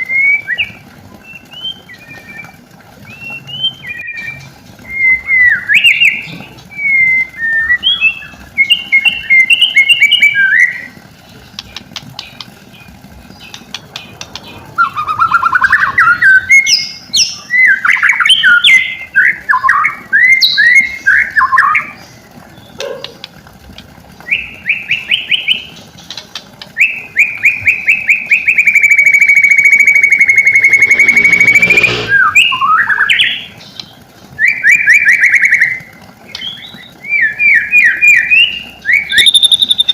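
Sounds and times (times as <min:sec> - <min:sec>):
bird singing whistled phrases: 0:00.0 - 0:11.0, 0:14.8 - 0:22.0, 0:24.2 - 0:25.8, 0:26.8 - 0:33.5, 0:34.4 - 0:39.9
bird buzzing call: 0:28.6 - 0:32.7.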